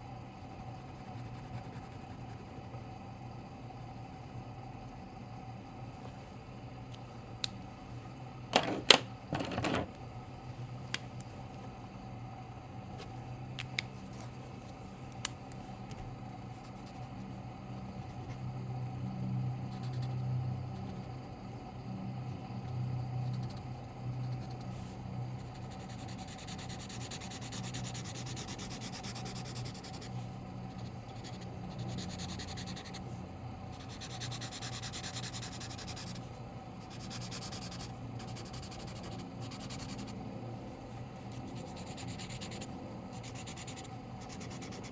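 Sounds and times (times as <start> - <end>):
drawing tool rubbing on paper: 41.3 - 44.9.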